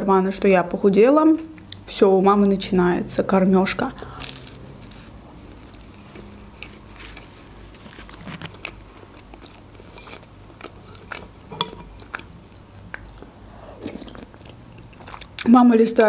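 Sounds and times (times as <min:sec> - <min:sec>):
chewing crunchy pastry: 0:03.9 - 0:16.0.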